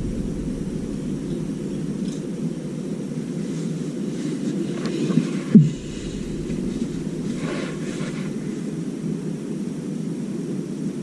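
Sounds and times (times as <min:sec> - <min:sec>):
sharp thud: 0:00.0 - 0:02.8
low rumble: 0:00.0 - 0:04.0, 0:05.6 - 0:08.6.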